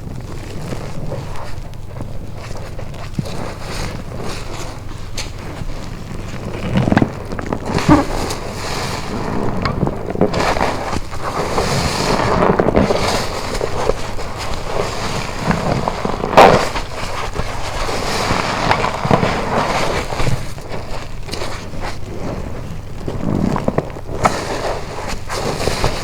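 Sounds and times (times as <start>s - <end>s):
wet sponge squelching: 0.2s - 26.0s.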